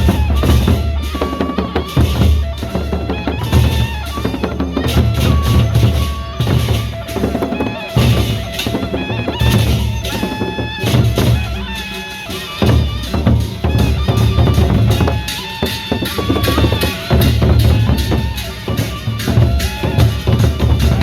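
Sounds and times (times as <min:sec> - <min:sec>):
heavy driving drumbeats: 0:00.0 - 0:21.0
procession band music: 0:00.0 - 0:21.0.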